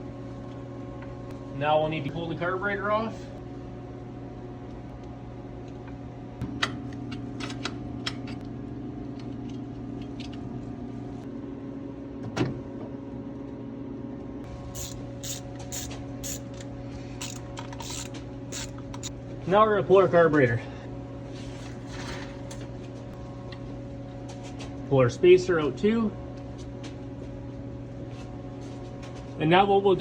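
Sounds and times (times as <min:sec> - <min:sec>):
steady hum: 0:14.4 - 0:20.0
ratchet clicks: 0:14.8 - 0:16.6, 0:17.2 - 0:19.1.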